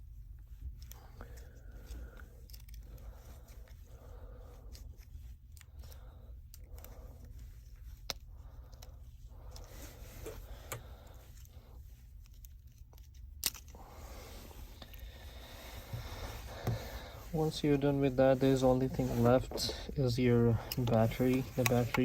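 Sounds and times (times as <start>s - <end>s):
small tools clicking and scraping: 0.8s - 3.8s.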